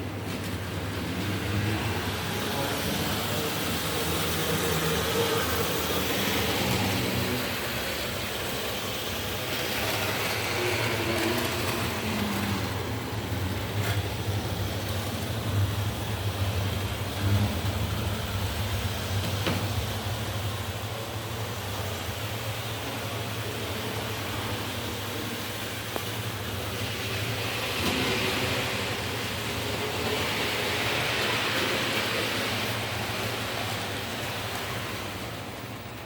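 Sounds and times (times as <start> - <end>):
model train motor humming: 0.5 - 36.0.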